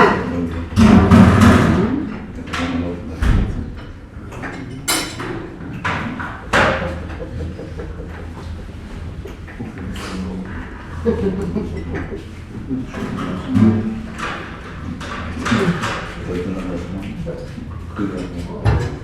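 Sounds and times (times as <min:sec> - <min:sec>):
crockery and furniture clattering: 0:00.0 - 0:19.0
faint hubbub of voices: 0:00.0 - 0:19.0.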